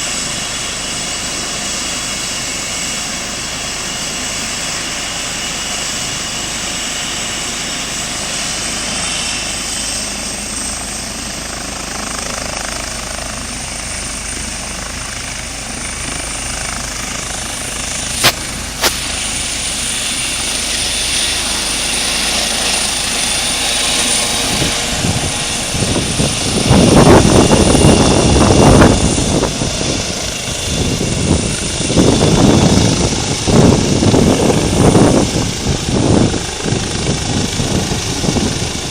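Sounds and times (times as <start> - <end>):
helicopter: 0.0 - 38.9
rumbling gusts: 13.5 - 38.9.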